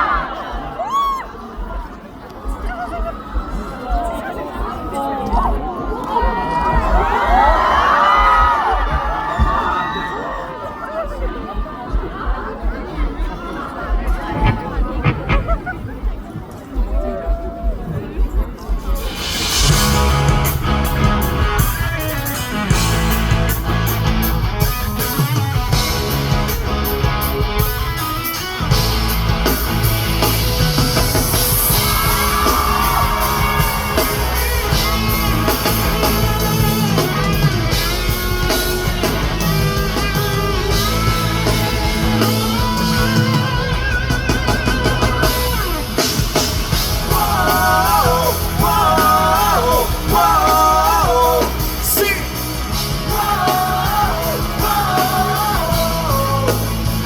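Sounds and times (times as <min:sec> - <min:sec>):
live rock band playing: 0:19.0 - 0:57.0
person singing: 0:46.8 - 0:57.0.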